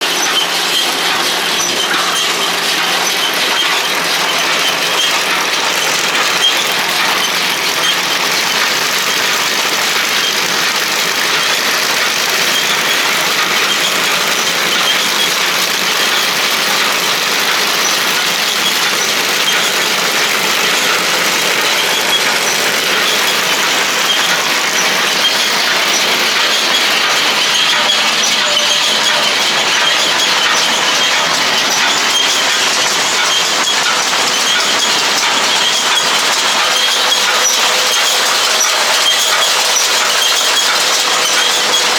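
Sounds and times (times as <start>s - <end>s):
tractor-driven baler running: 0.0s - 41.9s.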